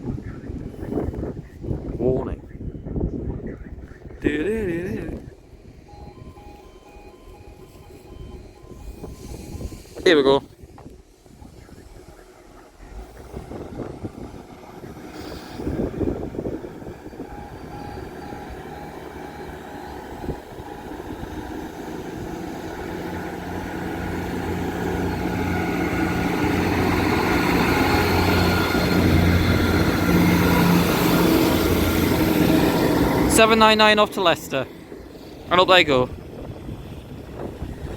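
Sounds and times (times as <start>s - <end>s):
diesel train engines under load: 0.0s - 37.9s
short pulsing beep: 5.9s - 10.0s, 15.2s - 22.9s.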